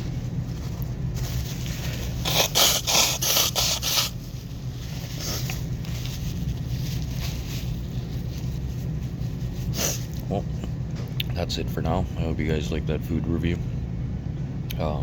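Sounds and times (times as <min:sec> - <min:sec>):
steady low hum: 0:00.0 - 0:15.0
quick rubbing strokes: 0:01.2 - 0:10.2.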